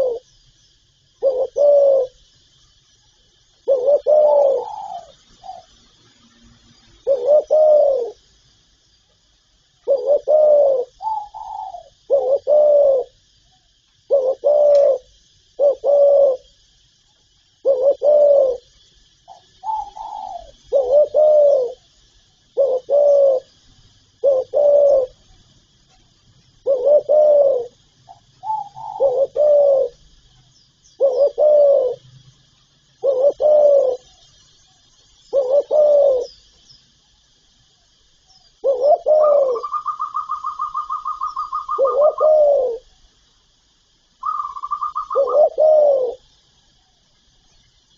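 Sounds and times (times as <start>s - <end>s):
dove cooing: 0.0s - 0.3s, 1.2s - 2.2s, 3.6s - 5.8s, 6.9s - 8.2s, 9.8s - 13.2s, 14.1s - 16.6s, 17.6s - 18.7s, 19.3s - 21.9s, 22.5s - 23.6s, 24.2s - 25.2s, 26.6s - 30.0s, 31.0s - 32.2s, 33.0s - 34.3s, 35.2s - 36.4s, 38.6s - 43.0s, 44.2s - 47.0s
faint high hiss: 0.0s - 47.9s.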